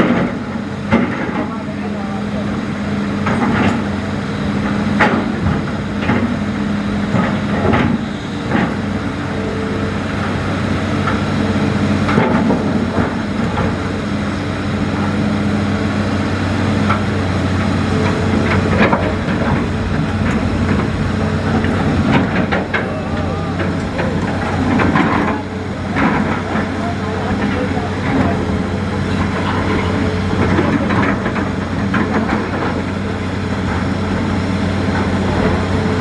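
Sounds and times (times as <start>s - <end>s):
machine knocks and clanks: 0.0s - 1.7s, 3.2s - 4.0s, 4.6s - 6.4s, 7.0s - 9.0s, 12.0s - 13.9s, 16.8s - 34.3s
excavator diesel engine: 0.0s - 36.0s.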